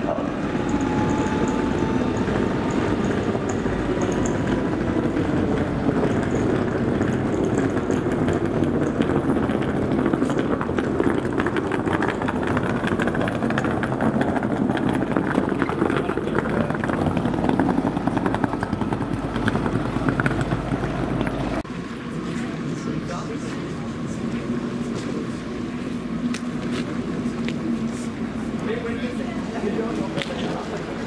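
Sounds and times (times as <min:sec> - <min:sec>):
rapid clicking of wheels: 0:00.0 - 0:31.0
train wheels rumbling on rail: 0:00.0 - 0:31.0.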